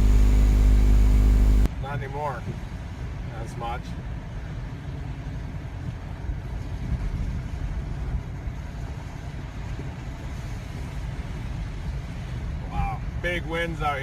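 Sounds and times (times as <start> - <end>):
car driving through snow: 0.0 - 1.7
strong wind buffeting: 0.0 - 1.7.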